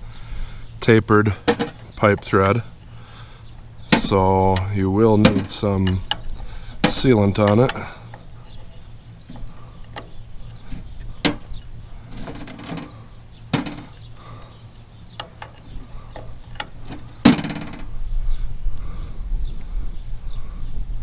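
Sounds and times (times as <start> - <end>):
metal tools clinking: 3.9 - 12.9, 15.2 - 17.8
wind rumble on microphone: 17.7 - 21.0.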